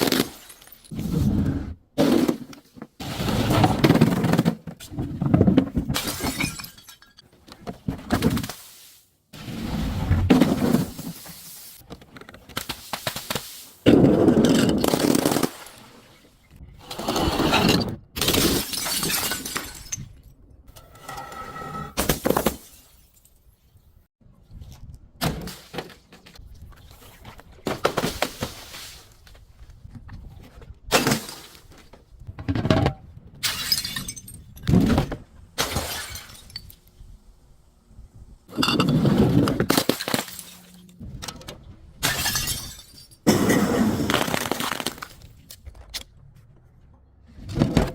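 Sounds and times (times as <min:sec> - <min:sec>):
glass bottles breaking: 0:05.9 - 0:07.2, 0:18.2 - 0:20.2, 0:33.4 - 0:34.5, 0:35.6 - 0:36.8, 0:39.7 - 0:40.8, 0:42.0 - 0:45.2.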